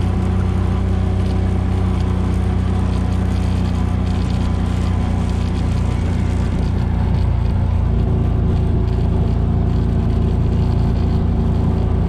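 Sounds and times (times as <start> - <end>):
atv engine droning: 0.0 - 12.0.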